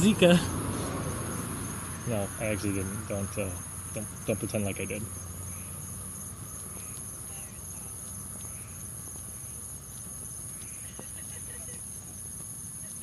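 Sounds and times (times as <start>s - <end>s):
high-pitched insect chorus: 0.0s - 13.0s
faint ticks: 6.6s - 11.4s.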